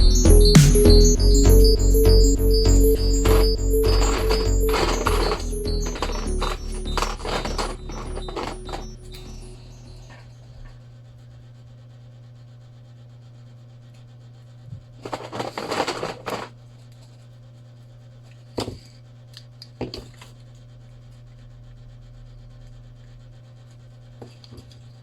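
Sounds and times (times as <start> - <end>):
steady low hum: 0.0 - 11.2
rubbing and scraping: 2.2 - 10.0, 15.0 - 16.6.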